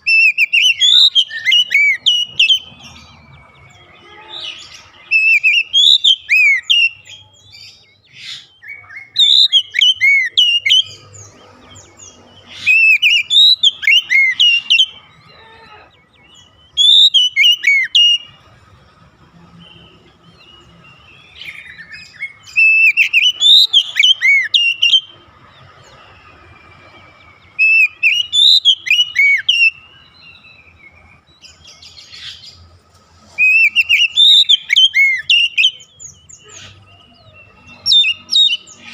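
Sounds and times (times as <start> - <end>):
bird singing whistled phrases: 0.0 - 2.7, 4.0 - 11.0, 12.5 - 15.8, 16.4 - 18.3, 19.7 - 25.2, 27.5 - 31.0, 33.4 - 38.9.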